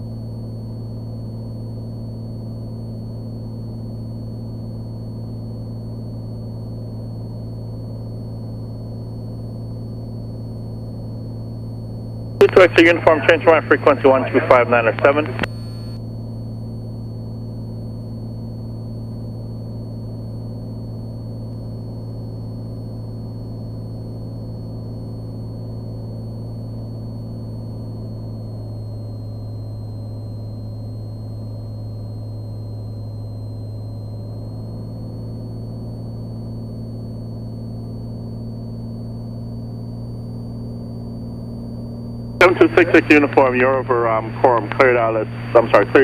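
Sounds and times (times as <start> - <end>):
airplane engine droning: 9.2 - 16.0, 24.4 - 46.0
thin high whine: 12.4 - 16.0, 25.9 - 46.0.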